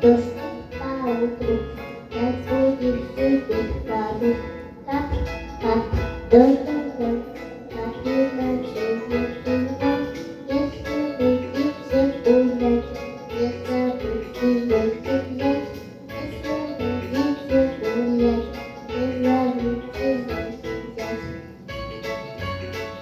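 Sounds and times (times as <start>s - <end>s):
piano melody: 0.0s - 23.0s.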